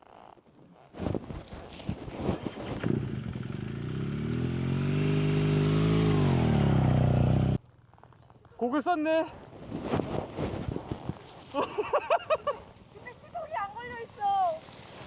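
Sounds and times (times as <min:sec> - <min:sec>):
motorcycle engine revving: 0:02.4 - 0:07.6
engine knocks and clatter: 0:02.4 - 0:07.7.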